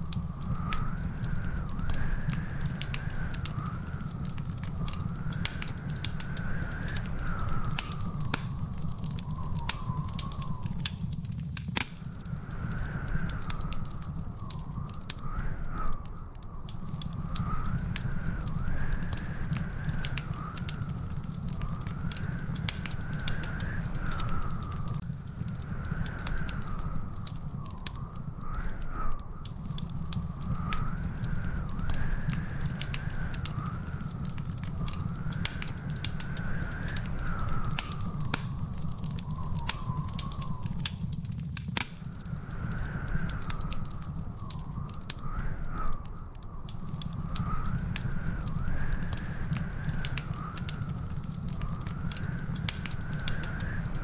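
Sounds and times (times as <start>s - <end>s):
low fire rumble: 0.0s - 54.0s
wood fire crackling and popping: 0.0s - 54.0s
wavering whistling tone: 6.3s - 11.1s, 34.7s - 41.2s.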